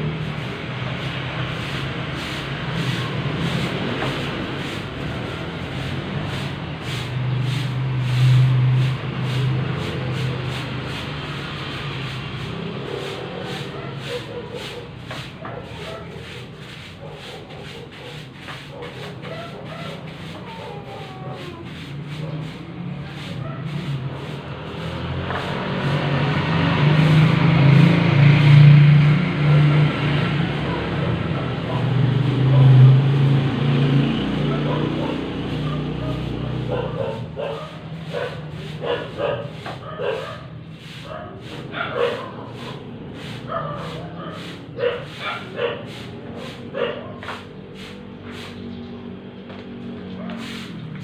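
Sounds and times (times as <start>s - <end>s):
broom sweeping a floor: 0.0s - 51.0s
dog barking and yipping: 13.2s - 21.6s, 23.4s - 23.9s, 34.4s - 47.4s, 50.2s - 50.5s.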